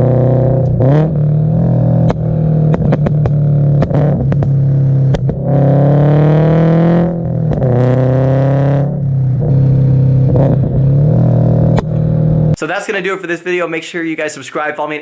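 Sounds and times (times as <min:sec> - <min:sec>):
sharp exhaust pops: 0:00.0 - 0:06.1, 0:06.8 - 0:12.6
car engine revving: 0:00.0 - 0:12.6.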